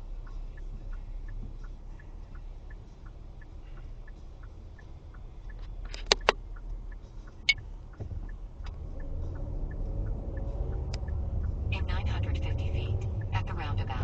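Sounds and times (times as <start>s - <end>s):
faint steady ticking: 0.0s - 14.0s
vehicle engine rumble: 0.0s - 14.0s
sharp clicks: 4.1s - 13.3s.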